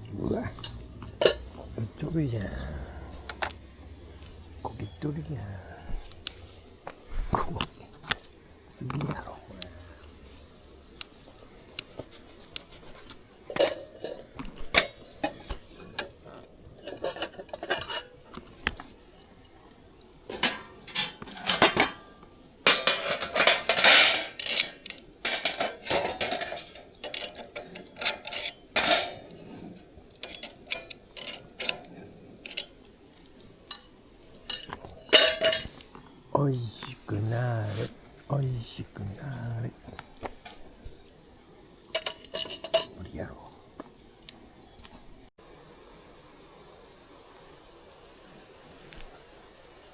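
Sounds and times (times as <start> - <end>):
metal cookware clinking and scraping: 0.5 - 2.1, 13.5 - 18.4, 20.3 - 32.8, 33.6 - 35.8, 41.9 - 43.0.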